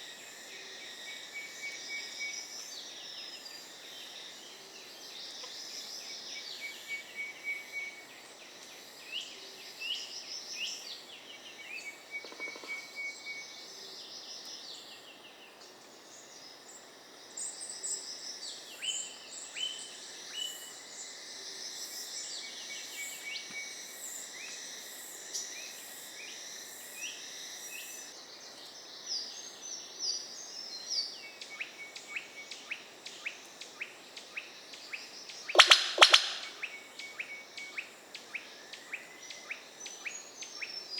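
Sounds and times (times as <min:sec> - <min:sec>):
trilling insects: 0:00.0 - 0:14.1, 0:15.9 - 0:40.9
birds chirping: 0:35.6 - 0:36.8.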